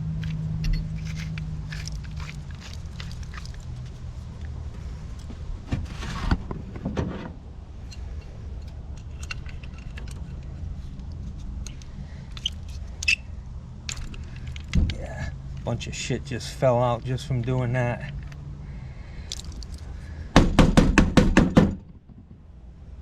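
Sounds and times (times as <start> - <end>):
low hum: 0.0 - 20.3
metal pipe fittings clinking: 0.2 - 4.5, 7.8 - 13.2.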